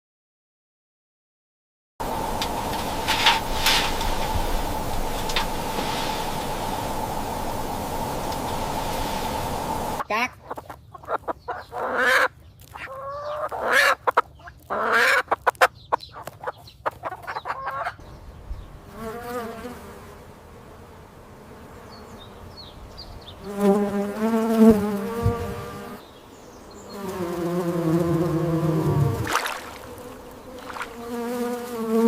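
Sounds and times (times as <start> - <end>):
flying insect buzzing: 2.0 - 10.0, 18.7 - 32.0
chicken-like clucks: 10.0 - 18.0.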